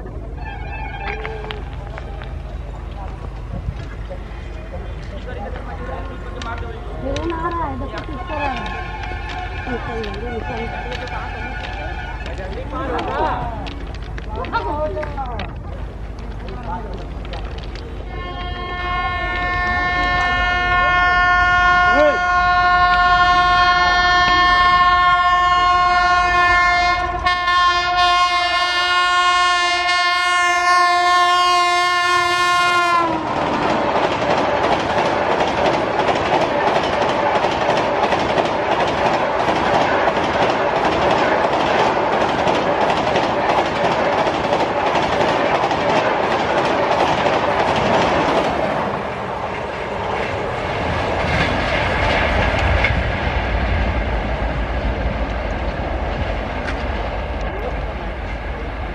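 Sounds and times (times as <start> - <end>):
wheels clacking over rail joints: 0.0 - 58.9
train horn long chord: 18.1 - 33.3.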